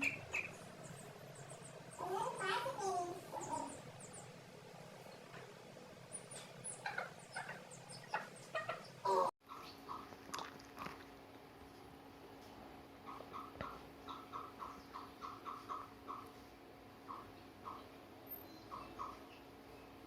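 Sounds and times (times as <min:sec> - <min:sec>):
hens calling: 0:00.0 - 0:04.1, 0:06.1 - 0:10.2, 0:13.0 - 0:18.0, 0:18.6 - 0:19.4
chicks peeping: 0:00.0 - 0:04.2, 0:06.1 - 0:10.1.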